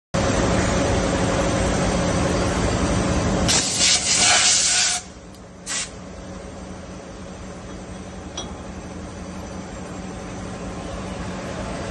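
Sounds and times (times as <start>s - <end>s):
hissing spray bursts: 3.5s - 5.1s, 5.7s - 6.0s.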